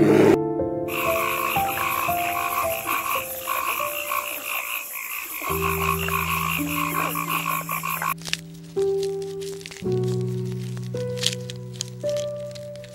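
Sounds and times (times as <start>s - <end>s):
frogs croaking in chorus: 0.9s - 8.4s.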